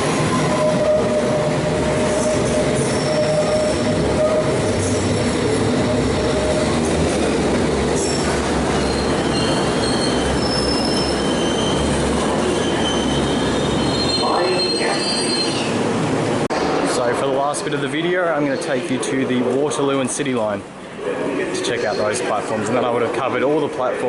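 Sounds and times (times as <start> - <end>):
train rumbling: 0.0 - 24.0
wheel squeal on rails: 0.2 - 5.2, 8.0 - 15.8.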